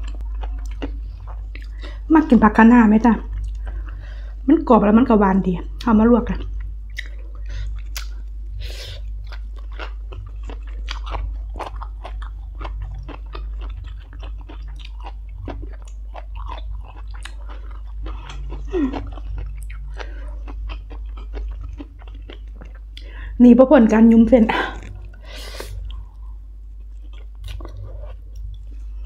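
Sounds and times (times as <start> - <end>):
crunchy chewing: 0.0 - 2.0, 6.4 - 23.0, 24.5 - 29.0.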